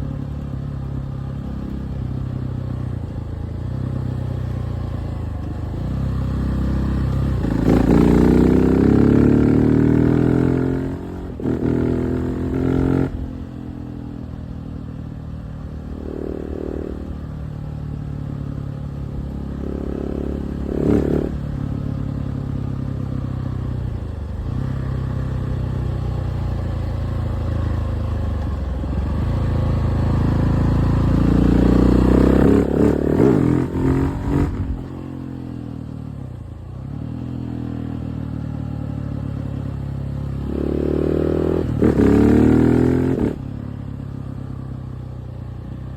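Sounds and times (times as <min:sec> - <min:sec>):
motorcycle engine revving: 0:00.0 - 0:14.8, 0:15.5 - 0:45.9.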